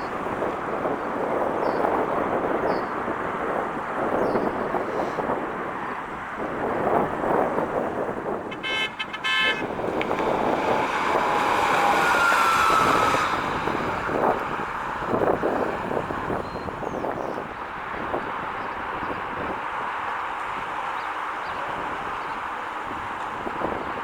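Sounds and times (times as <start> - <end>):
road and wind noise: 0.0 - 24.0
high-pitched toot: 8.5 - 9.8.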